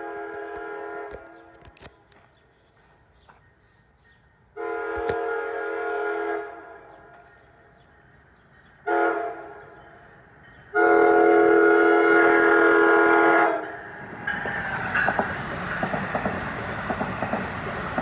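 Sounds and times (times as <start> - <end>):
train horn blasts: 0.0 - 1.5, 4.6 - 7.1, 8.8 - 9.9, 10.7 - 15.8.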